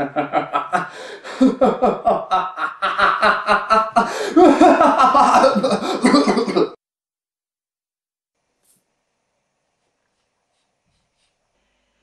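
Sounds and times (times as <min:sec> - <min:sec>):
person laughing: 0:00.0 - 0:06.8.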